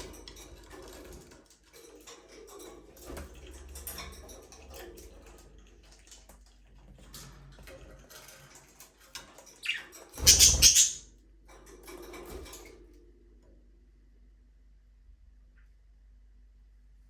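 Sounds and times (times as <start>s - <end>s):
budgerigars chirping: 9.6s - 11.0s.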